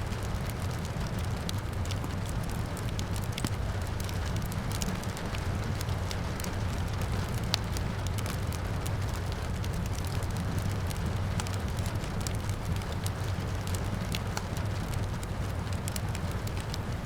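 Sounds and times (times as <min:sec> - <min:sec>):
rain: 0:00.0 - 0:17.0
rumble of flames: 0:00.0 - 0:17.0
wood fire crackling: 0:00.0 - 0:17.0.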